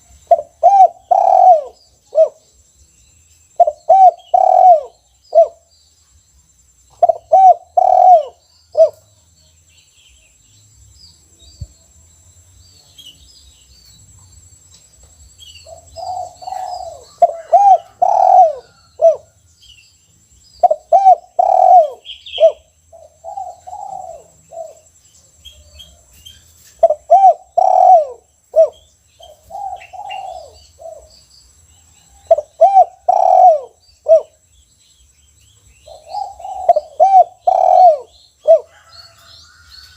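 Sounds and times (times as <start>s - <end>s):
dove cooing: 0.0s - 2.4s, 3.6s - 5.6s, 7.0s - 9.1s, 15.6s - 19.4s, 20.6s - 24.9s, 26.8s - 31.1s, 32.1s - 34.4s, 35.8s - 39.3s.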